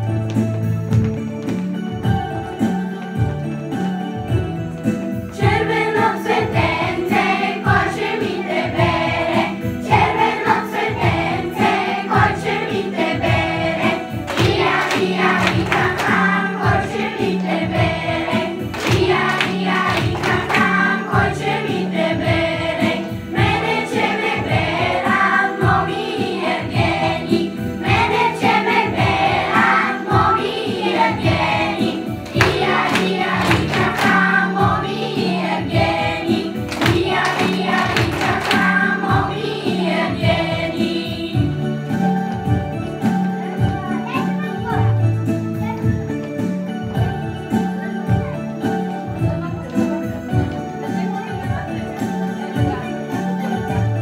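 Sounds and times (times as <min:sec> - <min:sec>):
backing music with steady beat: 0:00.0 - 0:54.0
children singing: 0:05.3 - 0:42.2.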